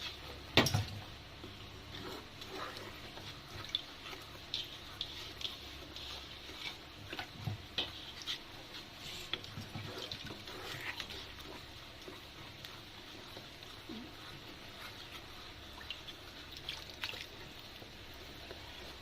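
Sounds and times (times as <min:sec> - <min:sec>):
paste sizzling in oil: 0:00.0 - 0:19.0.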